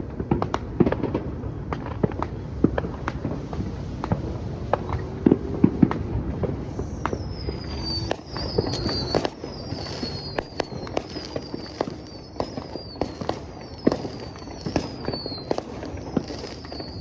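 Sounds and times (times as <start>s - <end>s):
fireworks popping and banging: 0.0s - 17.0s
high whistle sliding down: 4.7s - 17.0s.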